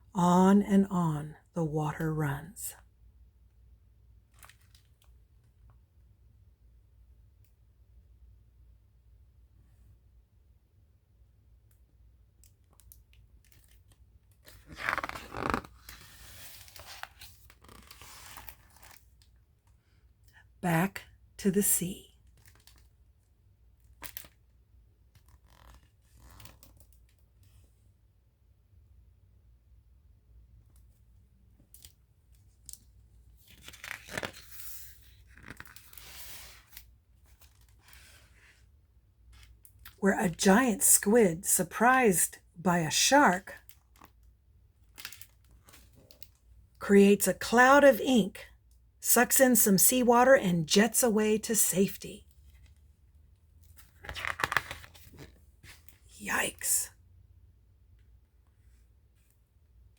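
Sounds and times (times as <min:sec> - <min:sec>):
book page turning: 0:14.4 - 0:19.0, 0:25.2 - 0:26.9, 0:33.4 - 0:38.6, 0:53.7 - 0:56.0
paper rustling: 0:33.4 - 0:36.8, 0:53.8 - 0:55.9.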